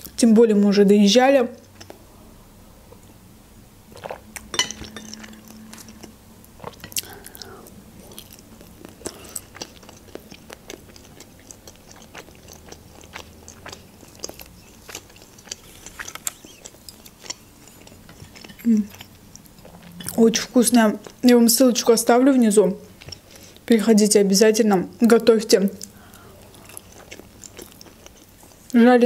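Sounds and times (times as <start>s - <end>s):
person chewing dumplings: 3.9s - 20.2s, 22.9s - 23.7s, 25.8s - 28.8s.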